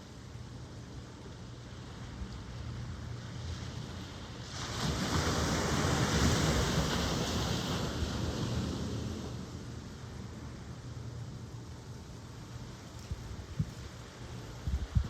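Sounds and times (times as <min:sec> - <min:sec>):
steady surf wash: 0:00.0 - 0:15.0
wave breaking and washing in: 0:01.6 - 0:11.5.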